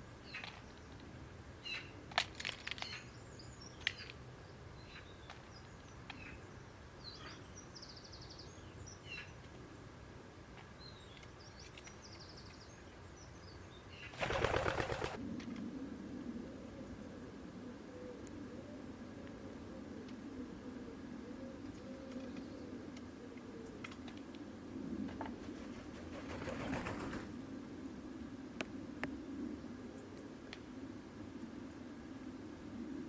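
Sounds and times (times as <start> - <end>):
bird wings flapping: 14.1 - 15.2, 25.1 - 27.4.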